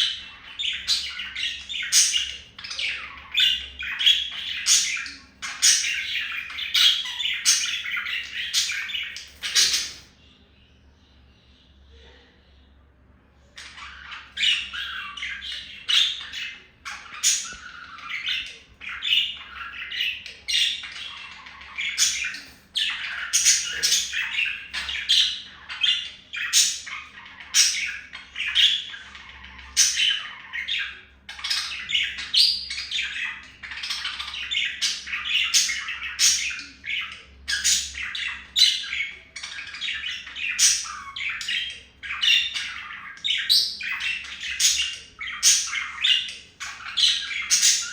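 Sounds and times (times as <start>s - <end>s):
budgerigars chattering: 0.0s - 10.2s, 13.5s - 47.9s
sharp bird calls: 0.0s - 12.1s, 13.4s - 47.9s.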